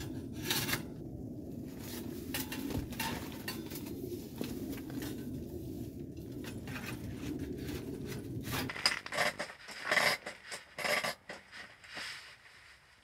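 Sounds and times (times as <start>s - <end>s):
low rumble: 0.0s - 10.4s.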